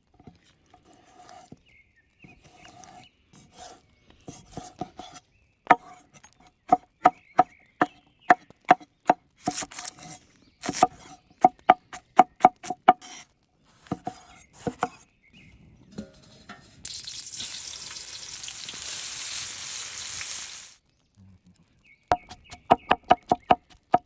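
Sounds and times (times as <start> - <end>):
cleaver cutting and scraping meat: 0.3 - 1.7, 2.3 - 6.4, 9.0 - 15.0.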